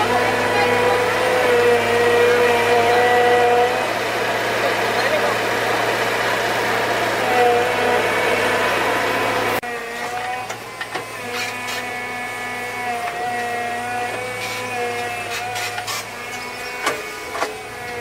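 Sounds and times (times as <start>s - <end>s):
small motor running: 0.0s - 18.0s.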